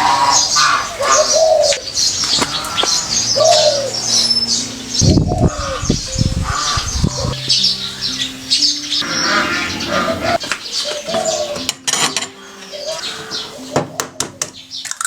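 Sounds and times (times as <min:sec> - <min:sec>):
dove cooing: 0:00.0 - 0:14.7
small birds chirping: 0:00.0 - 0:15.0.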